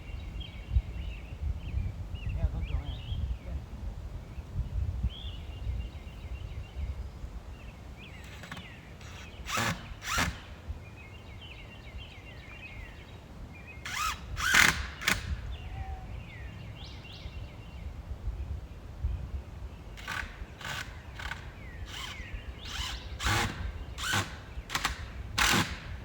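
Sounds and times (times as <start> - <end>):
birds chirping and calling: 0.0 - 26.0
loud rasping noises: 8.1 - 10.7, 13.8 - 15.5, 19.9 - 26.0.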